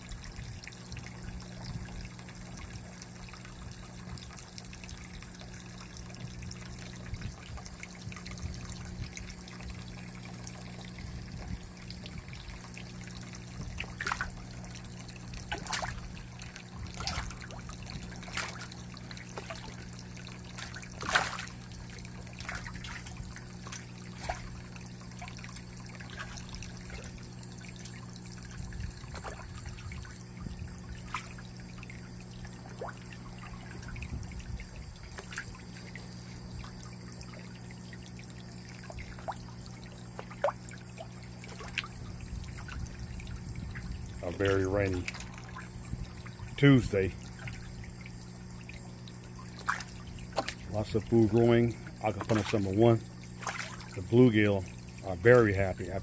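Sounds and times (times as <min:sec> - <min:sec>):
low steady hum: 0:00.0 - 0:56.0
water trickling: 0:00.0 - 0:56.0
short sharp splashes: 0:12.7 - 0:55.7.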